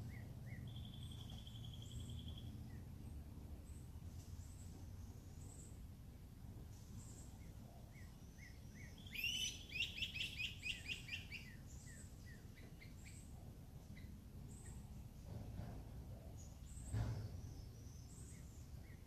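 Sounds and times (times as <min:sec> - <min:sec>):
songbird singing quick notes: 0:00.1 - 0:02.9, 0:06.9 - 0:13.3.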